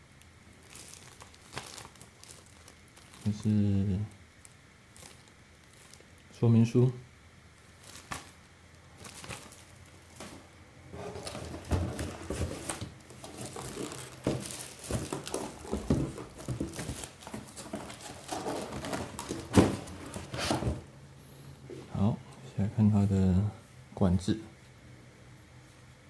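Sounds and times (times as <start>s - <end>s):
packaging rustling: 0.6s - 3.5s, 4.4s - 6.3s, 7.6s - 20.9s.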